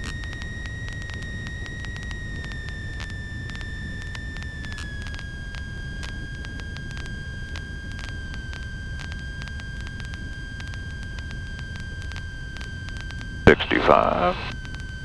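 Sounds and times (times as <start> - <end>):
aircraft engine drone: 13.5 - 14.5
intercom crackles: 13.5 - 14.5.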